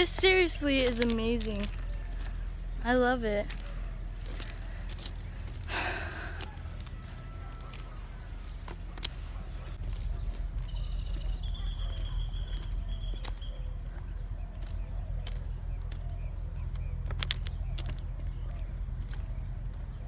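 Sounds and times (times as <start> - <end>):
birds calling: 0.0 - 20.0
steady low rumble: 0.0 - 20.0
fast ticking bird trill: 9.9 - 20.0.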